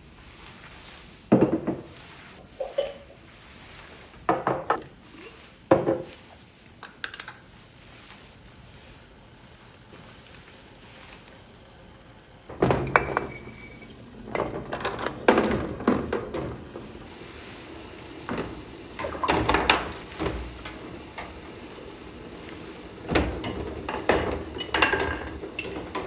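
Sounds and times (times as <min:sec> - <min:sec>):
dishes and utensils clinking: 0:02.6 - 0:03.1, 0:23.4 - 0:26.0.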